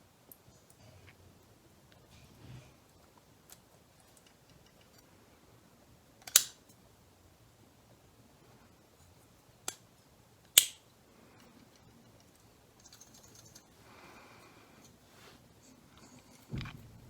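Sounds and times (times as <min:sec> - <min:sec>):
sharp clicks of small parts: 0:06.2 - 0:06.8, 0:10.5 - 0:10.9.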